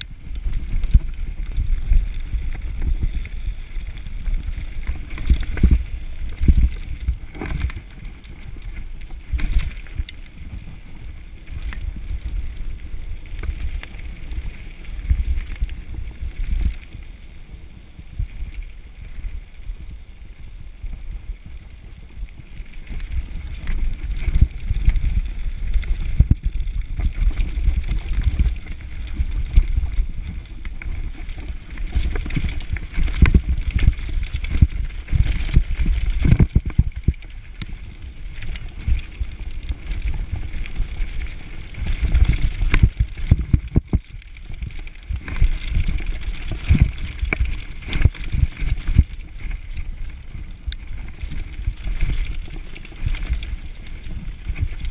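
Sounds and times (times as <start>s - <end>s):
bike rattling and knocking: 0.0s - 14.6s, 22.8s - 54.9s
bike tyres rumbling over dirt: 0.0s - 54.9s
wind buffeting microphone: 20.2s - 54.9s.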